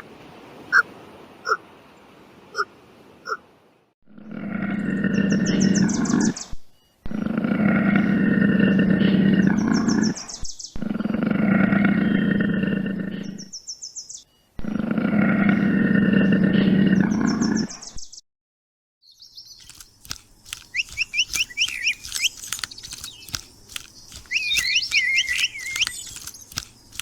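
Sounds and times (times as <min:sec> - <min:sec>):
animal's long low calls: 0:10.8 - 0:13.4
high chirping: 0:19.2 - 0:27.0.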